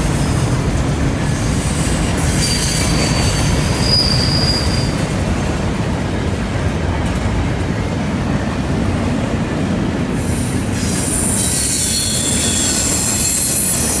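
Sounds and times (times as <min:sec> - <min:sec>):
freight train rumbling past: 0:00.0 - 0:14.0
wheel flange squeal: 0:02.2 - 0:05.0, 0:10.8 - 0:14.0.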